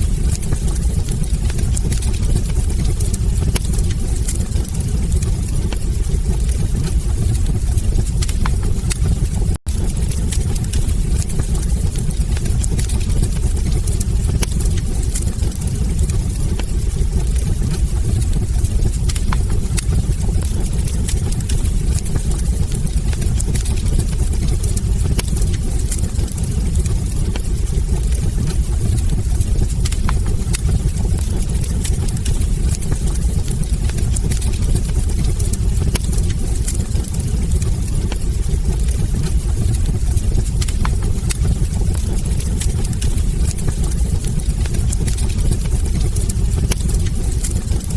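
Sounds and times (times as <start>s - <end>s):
fire crackles and pops: 0.0s - 47.9s
wood fire rumbling: 0.0s - 47.9s.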